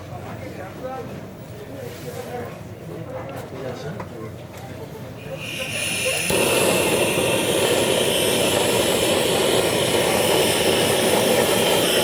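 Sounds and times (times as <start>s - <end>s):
gas flame roaring: 5.1s - 12.0s.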